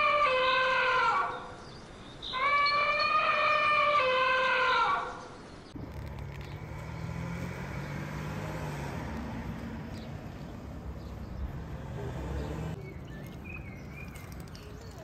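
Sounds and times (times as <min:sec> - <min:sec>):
bird chirps: 0:09.9 - 0:15.0.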